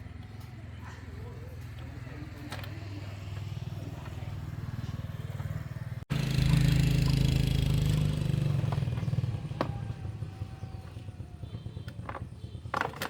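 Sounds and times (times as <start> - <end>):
engine running with rapid beat: 5.8 - 12.8.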